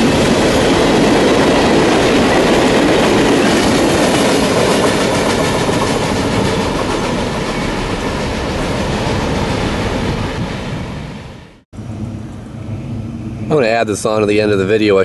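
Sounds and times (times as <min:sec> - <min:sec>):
freight train wheels clacking: 0:00.0 - 0:11.3.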